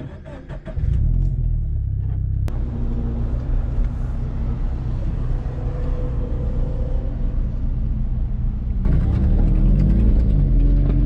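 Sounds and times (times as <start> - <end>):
car engine idling: 0.0 - 5.6.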